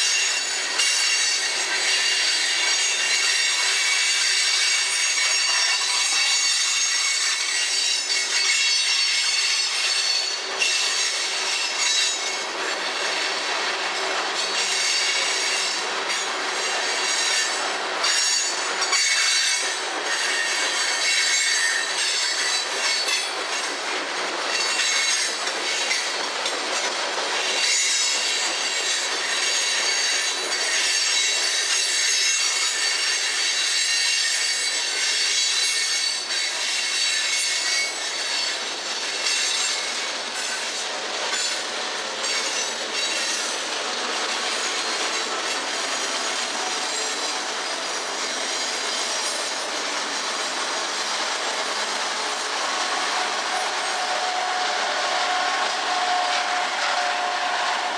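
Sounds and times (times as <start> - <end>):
wheels clicking over rail joints: 0.0 - 33.5
train wheels squealing: 0.0 - 57.9
locomotive hum: 39.9 - 57.9.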